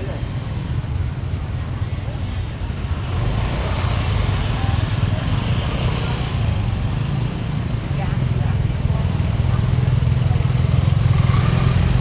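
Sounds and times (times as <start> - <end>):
busy street market hubbub: 0.0 - 12.0
motorbike engine running: 8.1 - 12.0.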